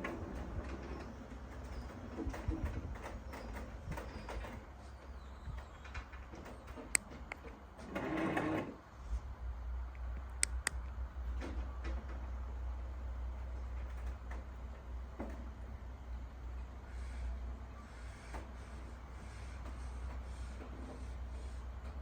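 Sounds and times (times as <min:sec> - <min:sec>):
sharp clicks: 0:09.9 - 0:10.8.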